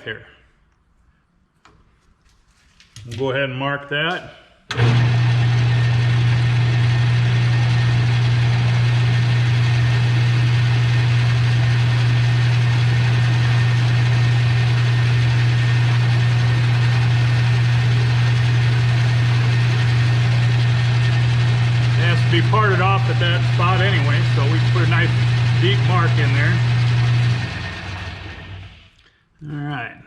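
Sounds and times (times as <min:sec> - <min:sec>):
metal lathe humming: 0:04.7 - 0:28.8.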